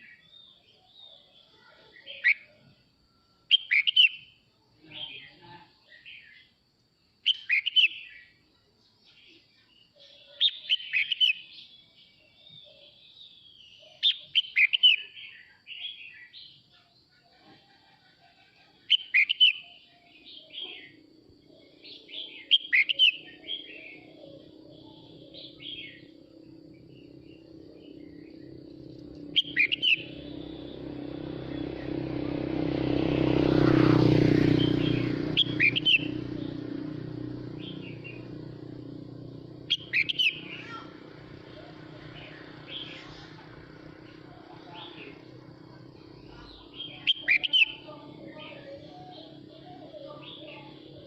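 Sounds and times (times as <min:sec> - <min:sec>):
bird singing whistled phrases: 0:03.5 - 0:04.3, 0:07.2 - 0:08.2, 0:13.7 - 0:16.4, 0:18.9 - 0:20.9, 0:21.9 - 0:26.1, 0:29.2 - 0:32.0, 0:34.5 - 0:36.3, 0:39.7 - 0:40.9, 0:46.6 - 0:50.5
vehicle engine hum: 0:20.5 - 0:51.0.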